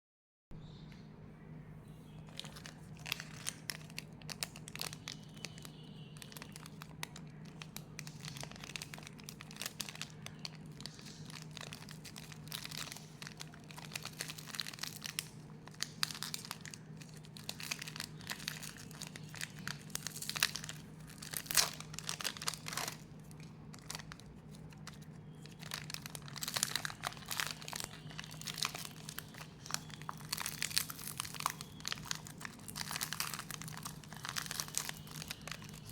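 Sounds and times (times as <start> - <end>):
packaging crinkling and tearing: 2.2 - 35.9.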